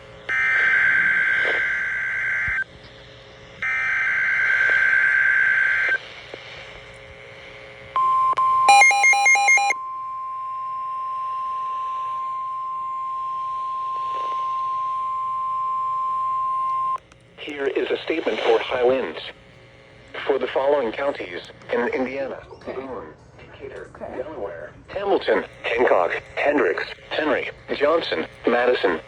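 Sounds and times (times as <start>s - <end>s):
steady alarm tone: 0.2s - 2.7s, 8.0s - 17.0s
warbling beeps: 8.7s - 9.8s.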